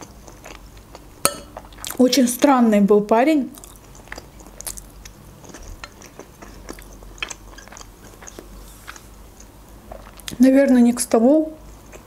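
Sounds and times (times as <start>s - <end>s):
chewing food: 0.0s - 2.2s, 3.5s - 10.5s, 11.6s - 12.0s.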